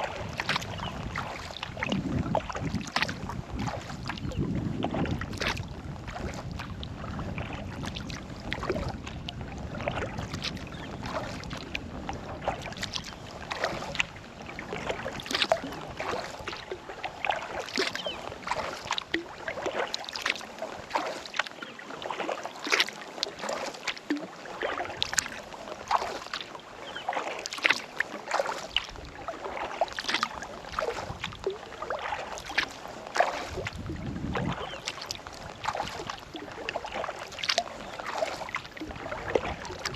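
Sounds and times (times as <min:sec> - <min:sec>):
water dripping off paddle: 0:00.0 - 0:06.7, 0:09.9 - 0:39.9
wind rumble on microphone: 0:00.0 - 0:19.8, 0:30.2 - 0:39.9
kayak paddle strokes in water: 0:00.0 - 0:39.9.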